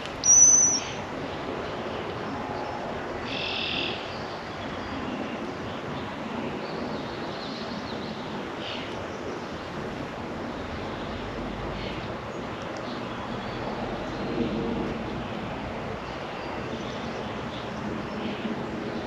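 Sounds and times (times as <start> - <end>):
rushing background noise: 0.0 - 19.0
short high bird calls: 0.2 - 1.0
low rumble: 12.9 - 17.1.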